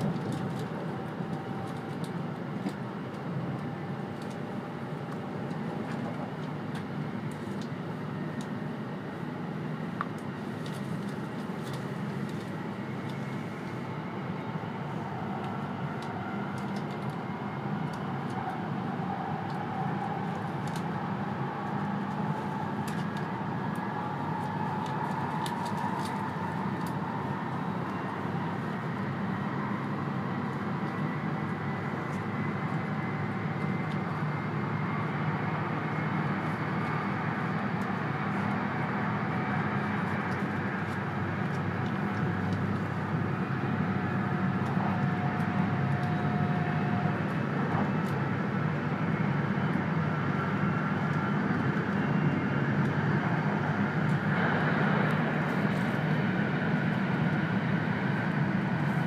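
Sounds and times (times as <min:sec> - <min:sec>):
electric train running: 0:10.2 - 0:59.0
faint rising whine: 0:43.0 - 0:59.0.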